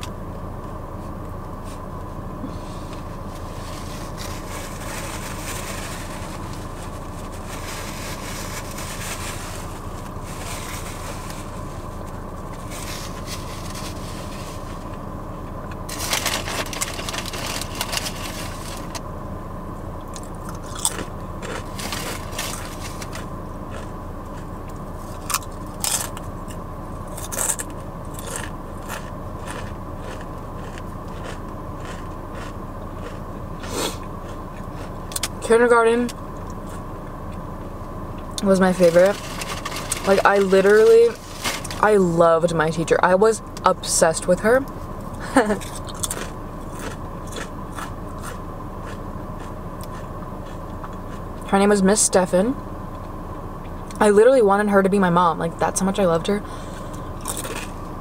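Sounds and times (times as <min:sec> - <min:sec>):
car cabin hum: 0:00.0 - 0:58.0
crunching: 0:03.1 - 0:15.0, 0:15.7 - 0:19.0, 0:20.1 - 0:35.4, 0:38.4 - 0:41.8, 0:45.6 - 0:51.2, 0:57.2 - 0:57.8
chewing sandwich: 0:20.1 - 0:35.4, 0:45.6 - 0:51.4.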